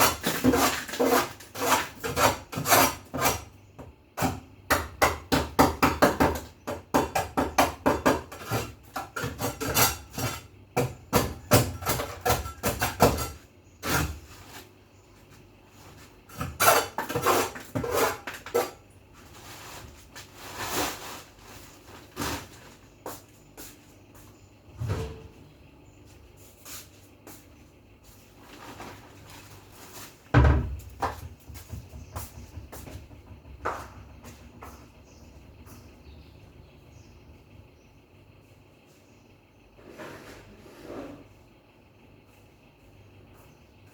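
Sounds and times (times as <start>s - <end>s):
scattered knocks: 30.5s - 35.5s.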